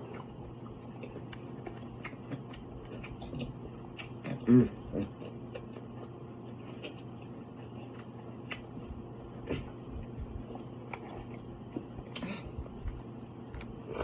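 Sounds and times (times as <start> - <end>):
chewing clicks and smacks: 0.1 - 4.3, 6.8 - 9.0.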